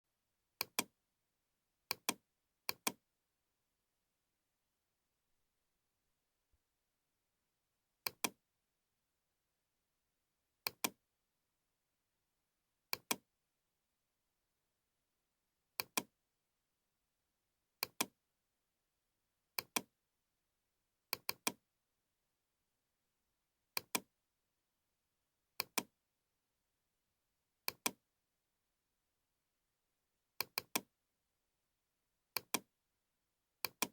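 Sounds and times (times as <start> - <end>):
computer mouse clicking: 0.6 - 0.9, 1.9 - 3.0, 8.1 - 8.4, 10.7 - 11.0, 12.9 - 13.2, 17.8 - 18.1, 19.6 - 19.9, 21.1 - 21.6, 23.8 - 24.1, 25.6 - 25.9, 27.7 - 28.0, 30.4 - 30.9, 32.4 - 32.6, 33.6 - 33.9.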